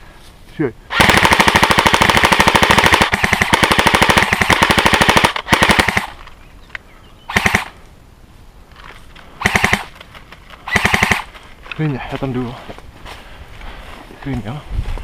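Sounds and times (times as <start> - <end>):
gun firing rapid bursts: 0.9 - 6.2, 7.3 - 7.7, 9.4 - 10.0, 10.7 - 11.3.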